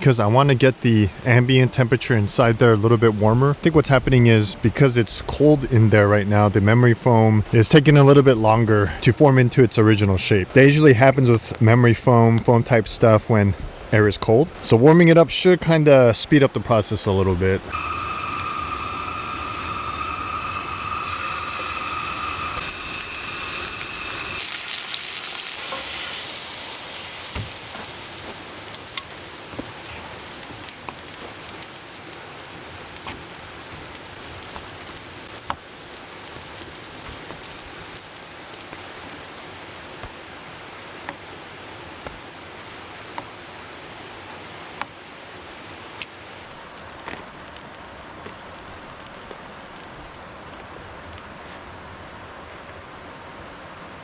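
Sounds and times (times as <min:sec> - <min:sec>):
steady rain: 0:17.6 - 0:54.0
steak sizzling in a pan: 0:17.7 - 0:44.2.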